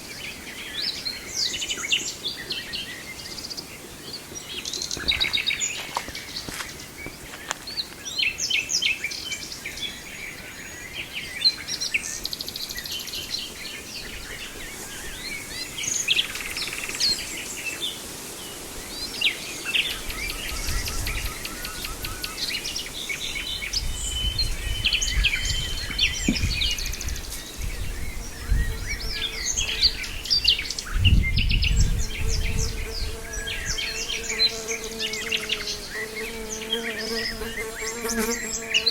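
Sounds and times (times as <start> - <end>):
nightingale singing: 19.0 - 38.9.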